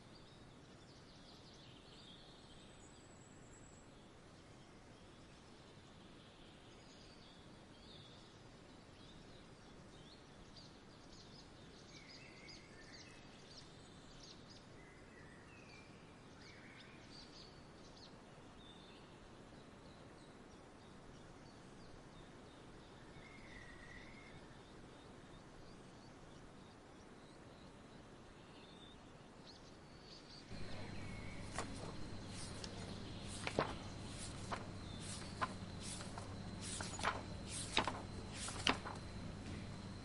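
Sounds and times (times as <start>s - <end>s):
soft steady hiss: 0.0s - 40.0s
small birds chirping: 24.5s - 40.0s.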